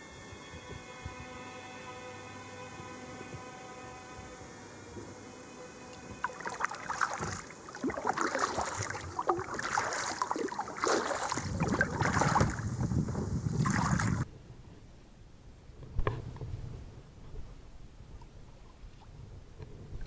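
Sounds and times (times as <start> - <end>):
kayak paddle splashing in water: 6.0 - 14.3.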